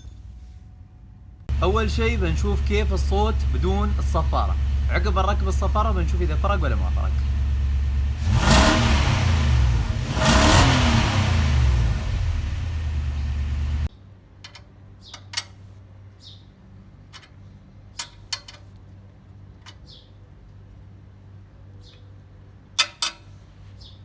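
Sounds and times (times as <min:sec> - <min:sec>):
car engine revving: 0:01.5 - 0:13.9.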